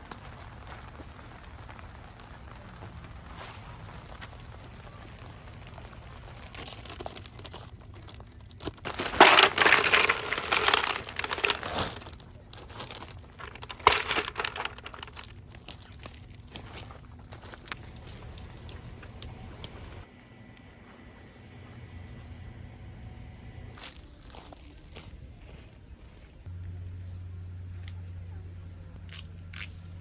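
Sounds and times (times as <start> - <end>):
crinkling and rustling: 0.0 - 20.1.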